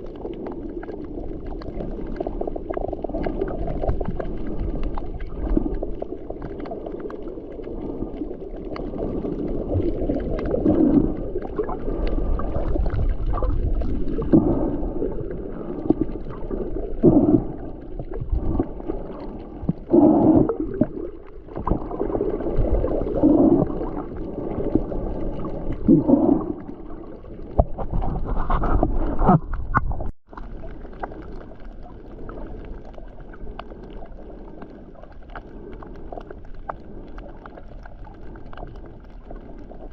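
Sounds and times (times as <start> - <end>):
water rushing against boat hull: 8.8 - 30.4.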